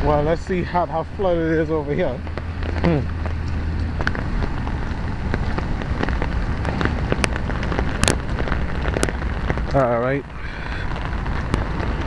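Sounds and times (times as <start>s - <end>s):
heavy rain falling: 0.0s - 12.0s
low rumble: 0.0s - 12.0s.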